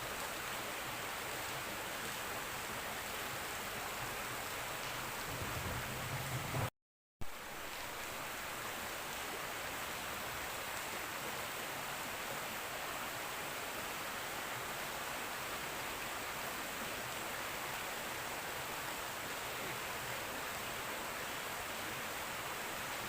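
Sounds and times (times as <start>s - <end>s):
river water flowing: 0.0s - 6.6s, 7.2s - 23.0s.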